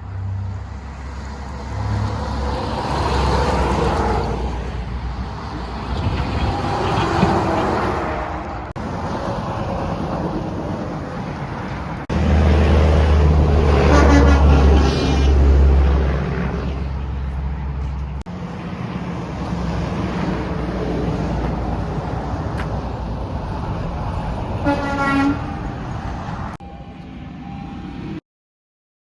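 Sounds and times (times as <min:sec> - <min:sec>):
road traffic: 0:00.0 - 0:28.2
truck engine drone passing: 0:00.0 - 0:28.2
wind on microphone: 0:02.6 - 0:17.0.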